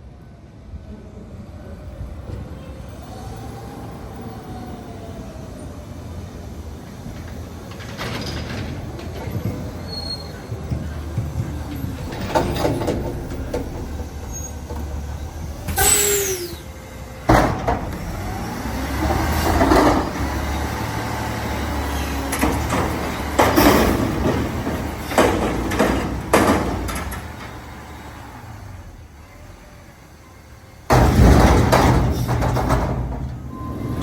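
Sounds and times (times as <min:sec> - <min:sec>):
truck engine rumbling: 0:01.4 - 0:34.0
squeals: 0:09.2 - 0:11.0, 0:11.6 - 0:17.0, 0:33.3 - 0:34.0
hydraulic hisses: 0:15.6 - 0:17.2
metal clanks: 0:22.2 - 0:27.8, 0:30.9 - 0:34.0.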